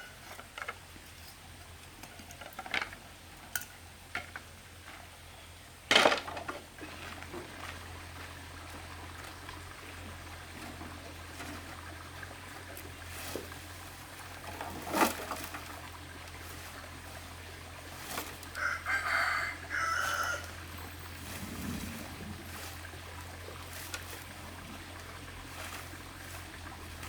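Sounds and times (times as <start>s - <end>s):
rooster crowing: 18.5s - 21.0s
steady low hum: 20.4s - 27.0s.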